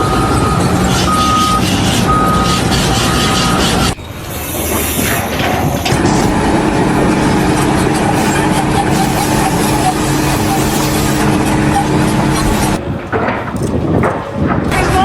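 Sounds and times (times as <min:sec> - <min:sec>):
engine running loudly: 0:05.0 - 0:12.8.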